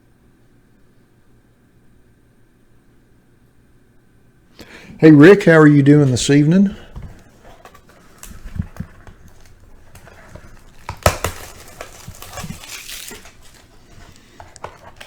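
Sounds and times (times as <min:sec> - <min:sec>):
packaging crinkling: 0:06.0 - 0:15.0.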